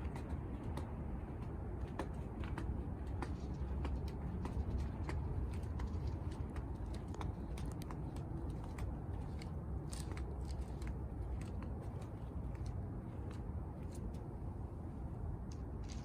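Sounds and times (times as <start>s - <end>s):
cats crunching food: 4.2s - 14.0s.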